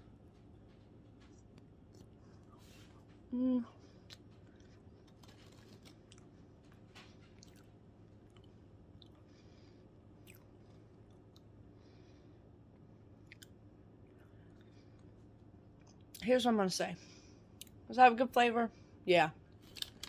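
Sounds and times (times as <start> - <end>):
person chewing soft cake: 0.0 - 16.2
person humming mm: 3.3 - 3.8.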